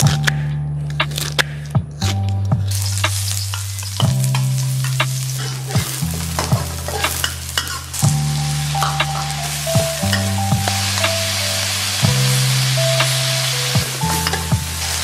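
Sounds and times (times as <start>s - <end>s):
onions sizzling in oil: 2.7s - 15.0s
metal spatula scraping pan: 3.0s - 8.0s.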